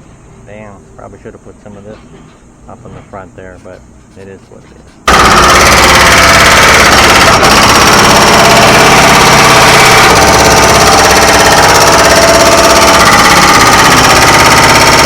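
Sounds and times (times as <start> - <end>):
excavator running: 5.0 - 15.0
hydraulic breaker hammering rock: 5.0 - 15.0.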